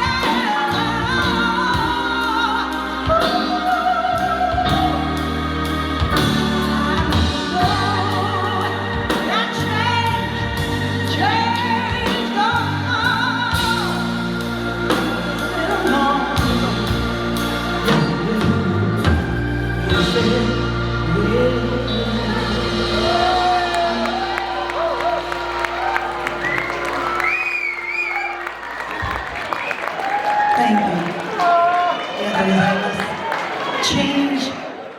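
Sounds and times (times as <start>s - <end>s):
woman singing with vibrato: 0.0s - 25.3s
backing music with steady beat: 0.0s - 27.4s.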